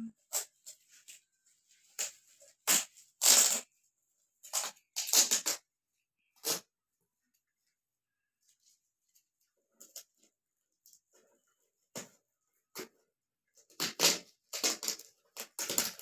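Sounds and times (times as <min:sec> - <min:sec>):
gift wrapping rustling and tearing: 0:00.2 - 0:03.8, 0:04.4 - 0:06.7, 0:13.5 - 0:16.0.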